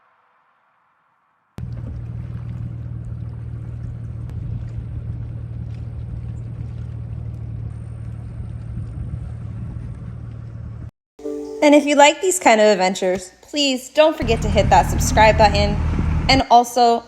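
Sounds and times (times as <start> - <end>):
vehicle engine and road rumble: 1.6 - 10.9, 14.2 - 16.5.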